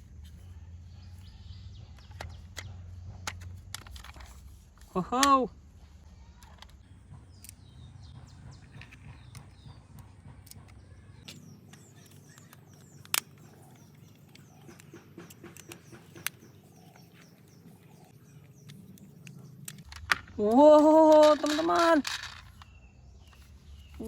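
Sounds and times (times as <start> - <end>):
birds chirping: 0.0 - 24.0
sharp clicks: 8.8 - 17.3.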